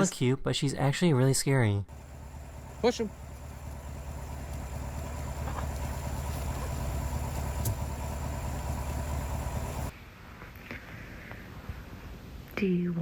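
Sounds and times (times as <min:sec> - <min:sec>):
low engine-like hum: 0:01.9 - 0:09.9.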